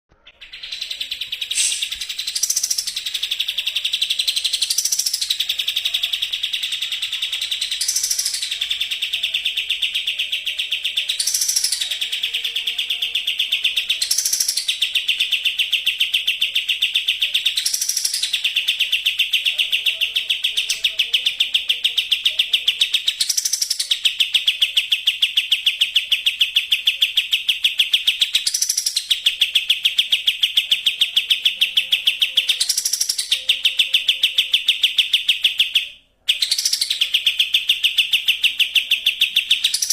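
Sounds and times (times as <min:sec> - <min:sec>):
songbird singing rapid trill: 0:00.4 - 0:39.9.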